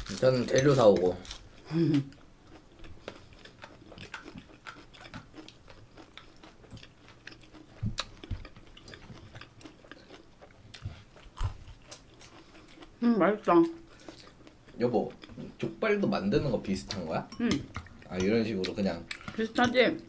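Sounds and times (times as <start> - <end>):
person chewing and biting food: 0.0 - 13.0.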